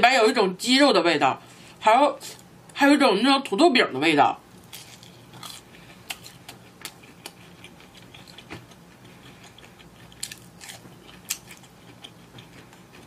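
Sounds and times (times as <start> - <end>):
person chewing crisp snack: 4.6 - 13.0.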